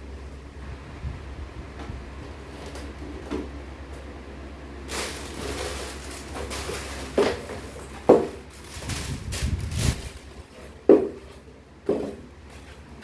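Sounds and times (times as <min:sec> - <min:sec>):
steady low hum: 0:00.0 - 0:13.0
rustling: 0:04.9 - 0:11.4.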